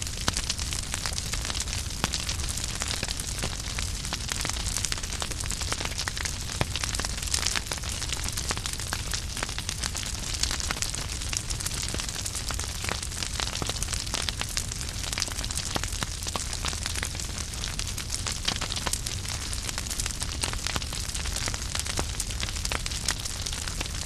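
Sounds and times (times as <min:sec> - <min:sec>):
flames hissing and rumbling: 0:00.0 - 0:24.0
wood fire crackling and popping: 0:00.0 - 0:24.0.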